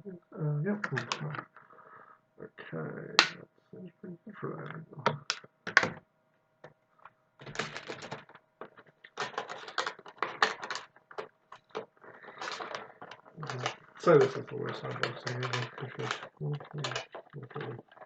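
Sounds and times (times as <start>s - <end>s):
plastic clicks: 0.8s - 1.7s, 5.1s - 6.0s, 6.6s - 18.0s
packaging rustling: 7.4s - 18.0s.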